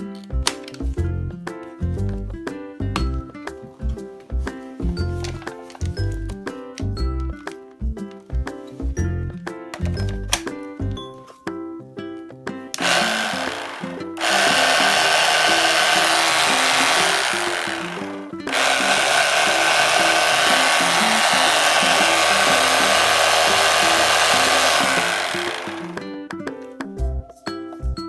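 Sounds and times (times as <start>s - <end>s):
background music: 0.0s - 28.0s
power tool motor whirring: 12.8s - 26.0s.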